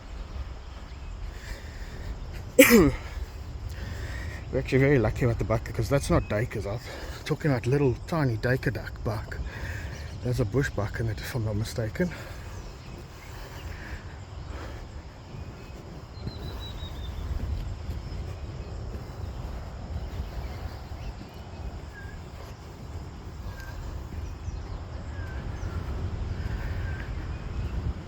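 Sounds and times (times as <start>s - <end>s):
birds chirping: 0.0s - 28.0s
low rumble on microphone: 8.0s - 28.0s.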